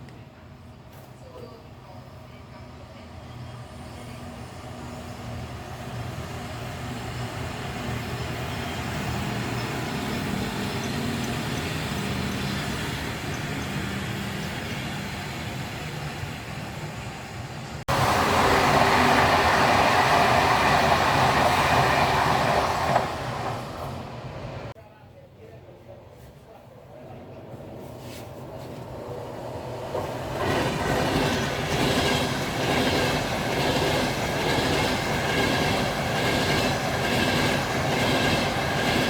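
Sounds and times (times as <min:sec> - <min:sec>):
train rumble: 0:00.0 - 0:24.8, 0:26.1 - 0:39.0
train rushing by close: 0:02.1 - 0:24.8, 0:27.1 - 0:39.0.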